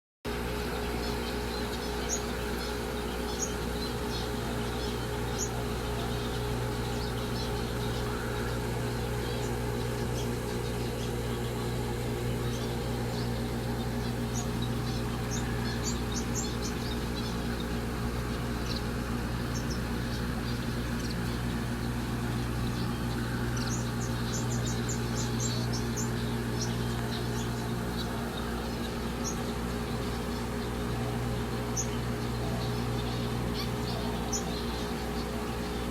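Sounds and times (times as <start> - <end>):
low mechanical hum: 0.3 - 35.9
small birds chirping: 0.3 - 35.9.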